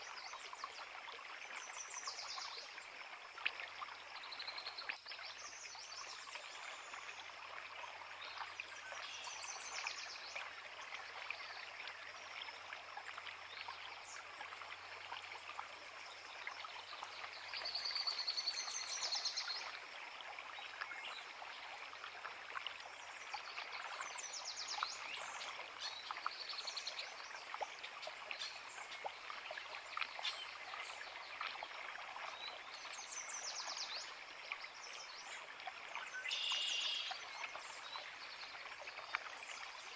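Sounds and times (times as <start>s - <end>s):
creek running over rocks: 0.0s - 39.9s
songbirds singing: 8.1s - 19.8s, 23.1s - 39.9s.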